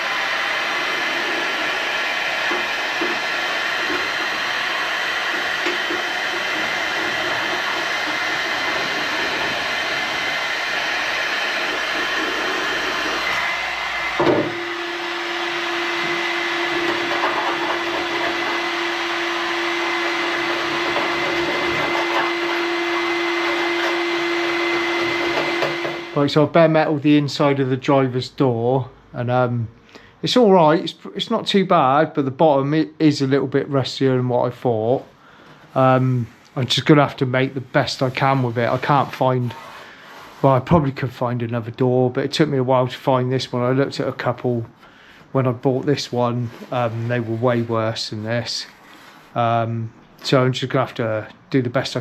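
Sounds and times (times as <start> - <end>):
electric power tool running: 0.0 - 26.2.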